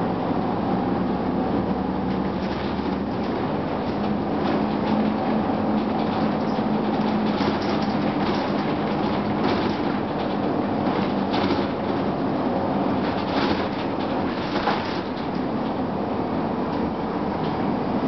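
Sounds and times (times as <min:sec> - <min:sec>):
air conditioning blowing: 0:00.0 - 0:18.0
bus diesel engine droning: 0:00.0 - 0:18.0
rattles: 0:02.1 - 0:12.2, 0:12.8 - 0:15.9.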